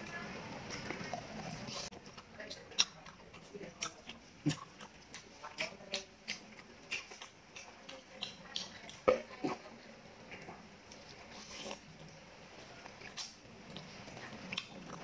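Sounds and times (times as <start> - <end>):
person chewing food: 0.0 - 15.0
wet lip smacks and mouth clicks: 0.6 - 9.6, 13.0 - 13.9.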